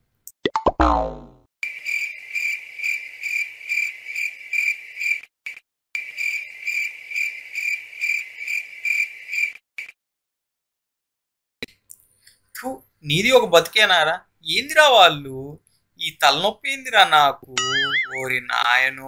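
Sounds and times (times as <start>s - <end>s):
cricket chirping: 1.6s - 5.2s, 6.0s - 9.6s.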